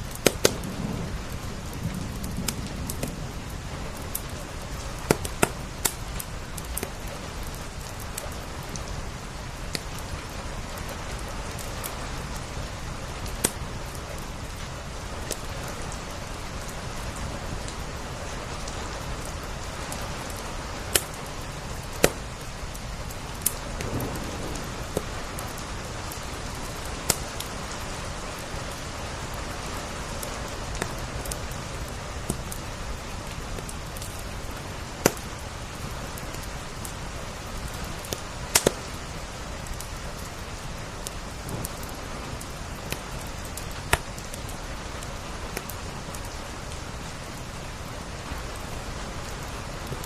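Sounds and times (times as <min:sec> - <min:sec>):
rain on window glass: 0:00.0 - 0:50.0
wood fire crackling and popping: 0:00.0 - 0:50.0.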